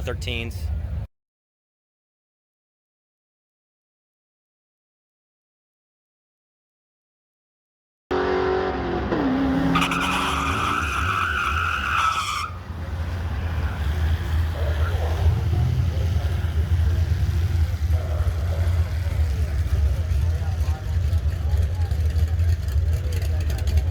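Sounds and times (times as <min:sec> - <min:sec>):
car engine rumble: 0:00.0 - 0:01.1, 0:08.1 - 0:23.9
tyres squealing: 0:09.6 - 0:15.3.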